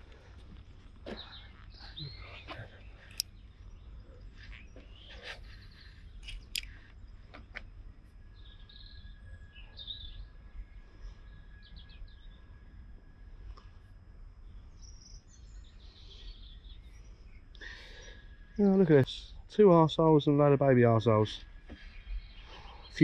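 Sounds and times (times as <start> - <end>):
constant low rumble: 0.0 - 23.0
small birds chirping: 0.0 - 23.0
bird trill: 1.1 - 7.3, 8.1 - 12.8, 14.5 - 20.1, 20.8 - 23.0
sharp clicks: 3.0 - 3.3, 6.2 - 7.7.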